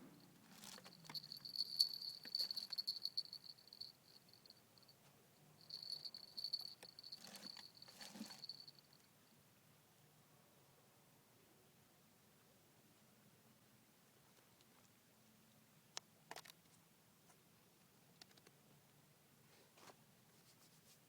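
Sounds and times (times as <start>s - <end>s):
insect trilling: 5.7s - 8.7s.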